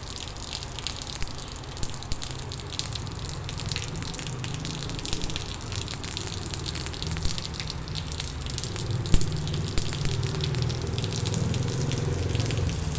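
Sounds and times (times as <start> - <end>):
rain falling: 0.0 - 12.9.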